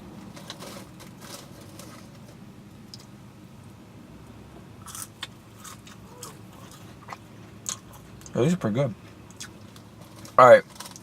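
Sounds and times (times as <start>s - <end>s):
low steady hum: 0.0s - 11.0s
person chewing crunchy fries: 0.2s - 3.1s, 4.8s - 8.4s, 9.0s - 11.0s.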